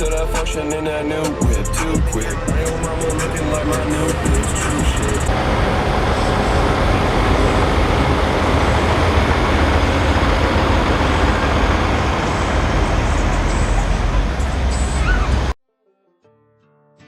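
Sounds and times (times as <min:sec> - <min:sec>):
truck engine running: 0:00.0 - 0:15.6.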